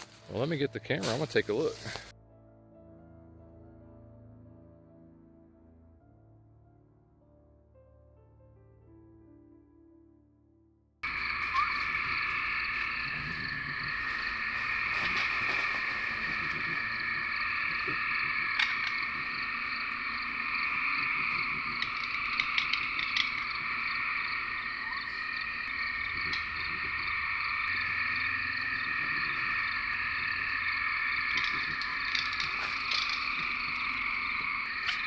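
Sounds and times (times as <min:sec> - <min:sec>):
frogs calling: 0:11.0 - 0:35.0
insects chirping: 0:11.0 - 0:35.0.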